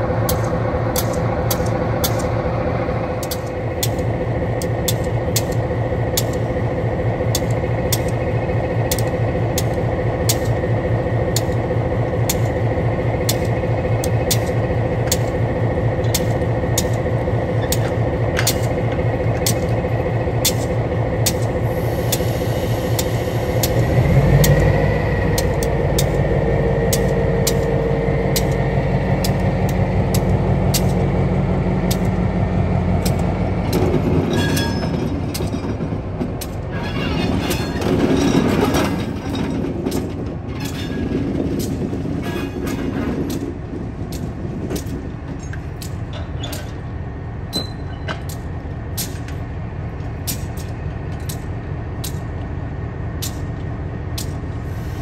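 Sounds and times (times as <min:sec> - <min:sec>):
diesel locomotive engine: 0:00.0 - 0:55.0
railcars rolling and clanking: 0:00.0 - 0:55.0.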